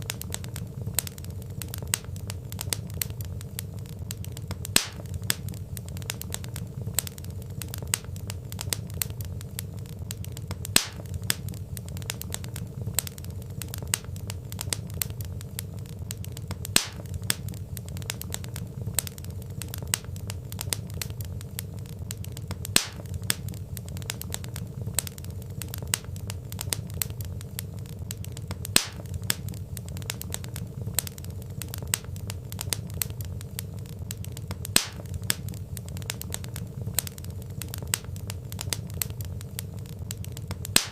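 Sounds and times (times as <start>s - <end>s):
low fire rumble: 0.0s - 40.9s
wood fire crackling: 0.0s - 40.9s
loud fire pop: 4.6s - 5.5s, 10.6s - 11.4s, 16.6s - 17.5s, 22.6s - 23.5s, 28.6s - 29.4s, 34.6s - 35.6s, 40.6s - 40.9s.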